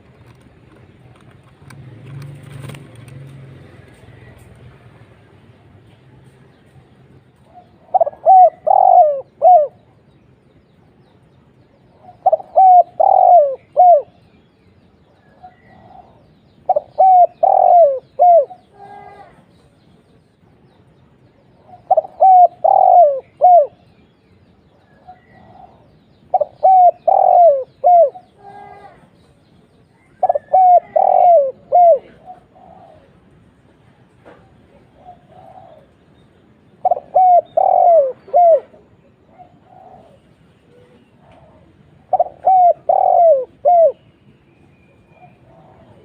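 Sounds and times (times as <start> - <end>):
dove cooing: 7.4 - 9.9, 11.9 - 14.2, 15.3 - 19.4, 21.6 - 23.9, 24.8 - 29.1, 30.0 - 33.4, 34.7 - 36.0, 36.8 - 44.1, 45.1 - 46.0.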